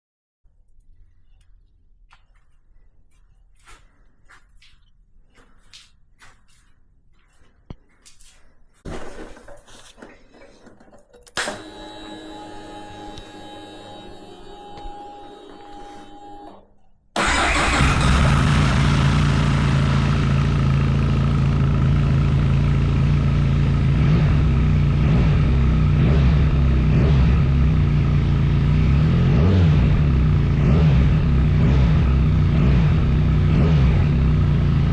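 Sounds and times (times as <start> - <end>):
motorcycle engine starting and idling: 11.1 - 34.9.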